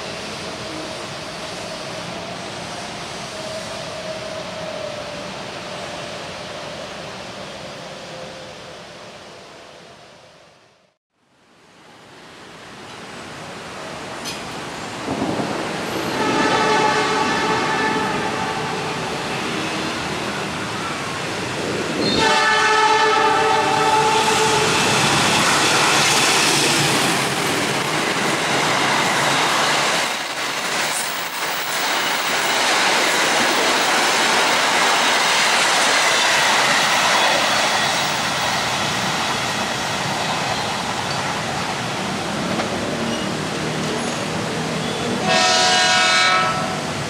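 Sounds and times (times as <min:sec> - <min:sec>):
train passing at speed: 0:00.0 - 0:11.0, 0:11.7 - 0:47.0
train horn: 0:16.0 - 0:18.7, 0:22.0 - 0:25.0, 0:45.0 - 0:46.9.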